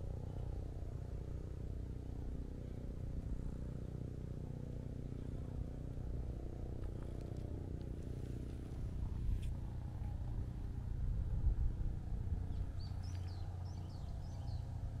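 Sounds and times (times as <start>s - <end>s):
low rumble: 0.0s - 15.0s
small bird chirping: 12.4s - 14.8s.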